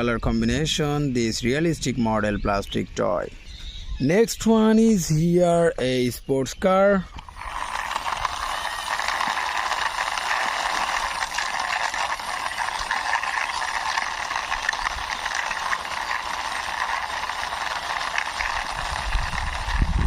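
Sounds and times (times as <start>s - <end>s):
toy car wheels rolling and rattling: 7.0s - 20.0s.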